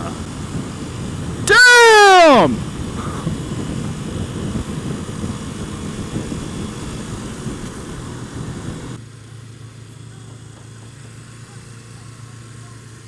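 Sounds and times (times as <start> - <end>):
wind buffeting microphone: 0.0 - 1.5, 2.5 - 9.0
motorcycle engine running: 2.6 - 13.0.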